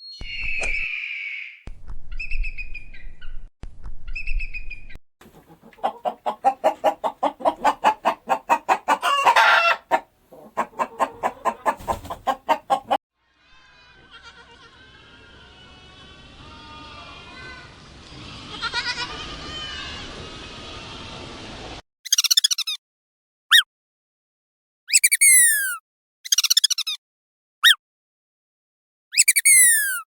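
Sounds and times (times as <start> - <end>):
hen clucking fast: 5.2 - 13.0
high chicken calls: 5.2 - 13.0.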